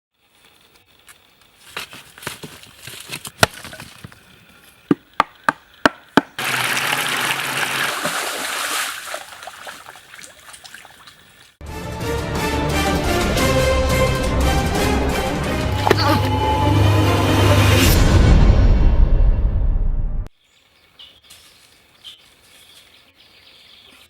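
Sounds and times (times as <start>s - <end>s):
rushing splashing water: 6.4s - 11.6s.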